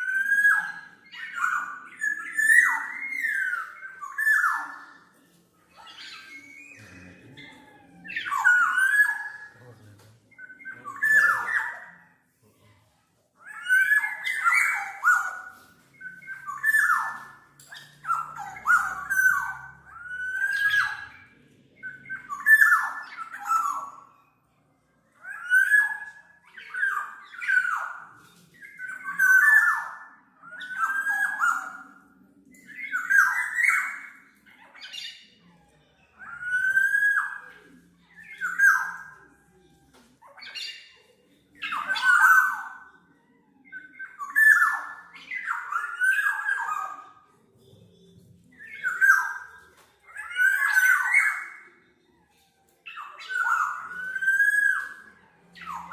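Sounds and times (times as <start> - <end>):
oriole whistled calls: 0.0 - 55.9.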